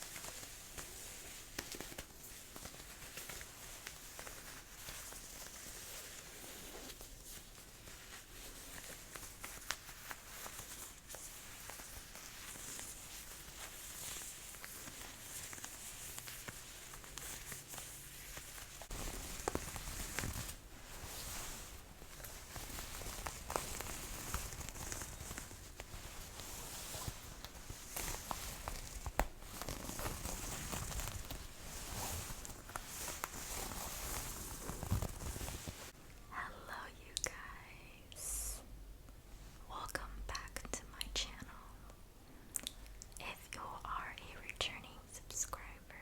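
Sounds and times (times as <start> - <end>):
jacket fabric rustling: 0.0 - 36.2.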